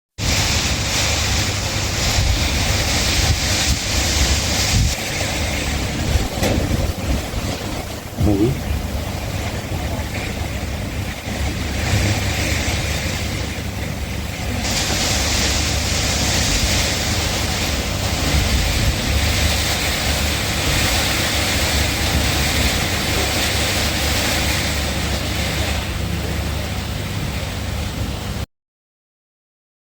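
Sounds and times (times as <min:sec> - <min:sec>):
gusting wind rumbling on microphone: 0:00.2 - 0:28.4
heavy rain: 0:00.2 - 0:28.5.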